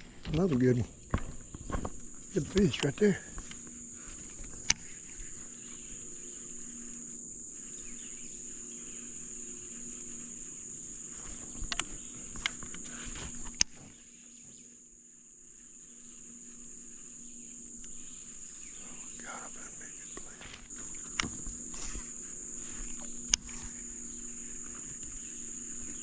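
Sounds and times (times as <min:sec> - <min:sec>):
insect chorus buzzing: 0:00.0 - 0:26.0
sharp clicks: 0:02.4 - 0:03.7, 0:11.6 - 0:12.9.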